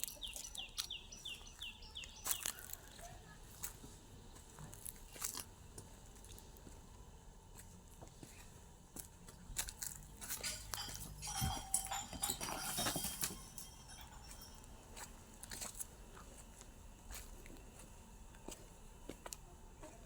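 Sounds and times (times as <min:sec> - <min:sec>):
clicks and knocks: 0:10.2 - 0:14.6.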